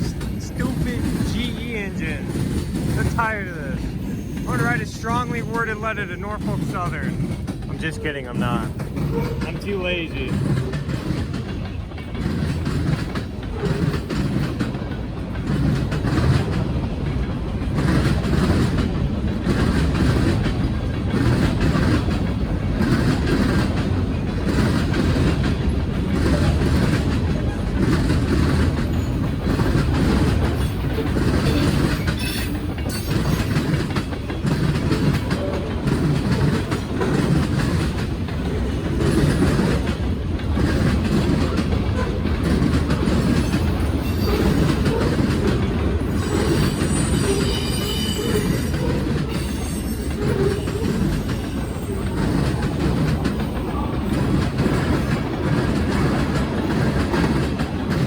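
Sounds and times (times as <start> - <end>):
freight train rumbling: 0.0 - 58.0
wheels clacking over rail joints: 0.0 - 58.0
high wheel squeal: 30.6 - 33.8, 43.4 - 45.2, 46.0 - 52.4.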